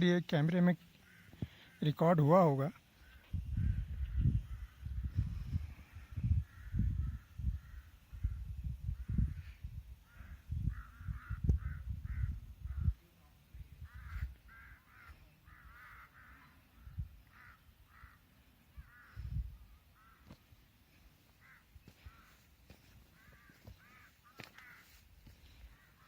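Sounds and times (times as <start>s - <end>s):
crows cawing: 0.9s - 2.0s, 2.7s - 5.0s, 5.9s - 8.4s, 10.0s - 12.9s, 13.8s - 20.4s, 21.3s - 26.0s.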